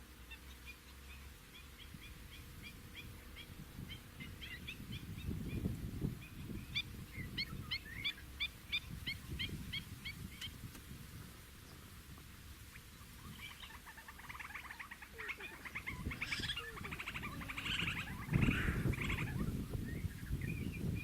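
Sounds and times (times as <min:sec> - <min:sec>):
bird chattering calls: 0:12.7 - 0:20.9.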